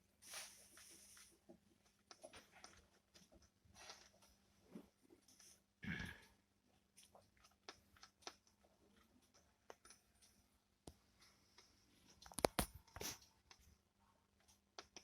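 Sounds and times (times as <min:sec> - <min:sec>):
radio static crackles and clicks: 0:12.2 - 0:13.2.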